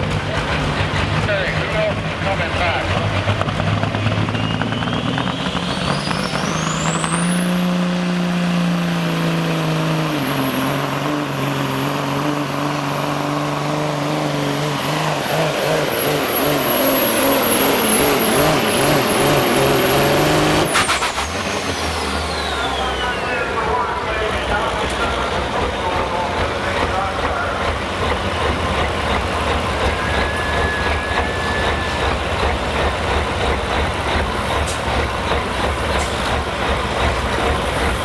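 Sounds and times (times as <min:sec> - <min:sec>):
diesel truck engine: 0:00.0 - 0:38.0
turbocharger whistle: 0:03.6 - 0:27.6, 0:28.4 - 0:33.4.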